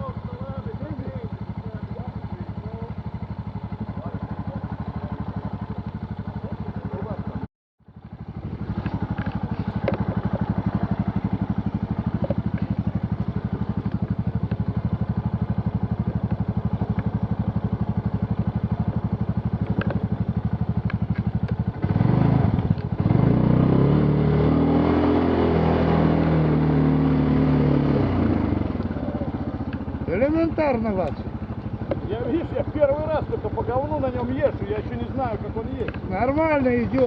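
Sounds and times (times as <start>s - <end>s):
off-road vehicle engine revving: 8.4s - 37.0s.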